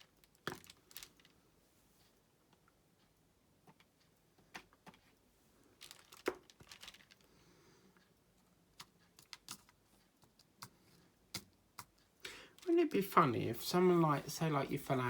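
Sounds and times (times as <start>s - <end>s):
plastic crinkling: 0.0s - 1.3s, 5.8s - 7.3s
drill pen tapping rhinestones: 8.8s - 12.1s.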